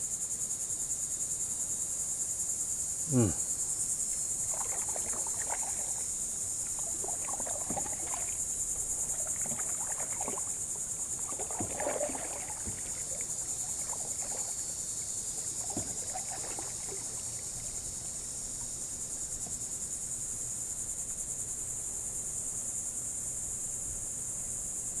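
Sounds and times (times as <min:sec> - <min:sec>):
insects chirping: 0:00.0 - 0:25.0
kayak knocks and water sounds: 0:04.1 - 0:20.3.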